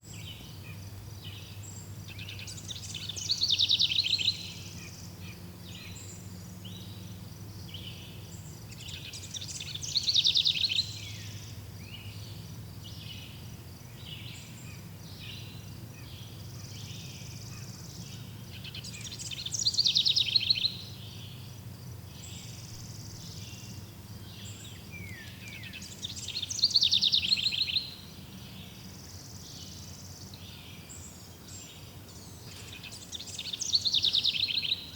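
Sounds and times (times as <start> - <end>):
bird trilled song: 0.0 - 34.9
soft bird chirps: 0.0 - 34.9
low steady rumble: 0.1 - 19.9, 20.6 - 26.4.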